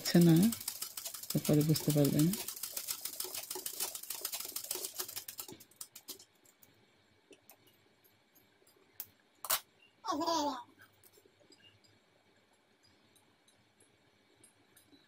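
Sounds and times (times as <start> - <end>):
sewing machine stitching: 0.0 - 6.2.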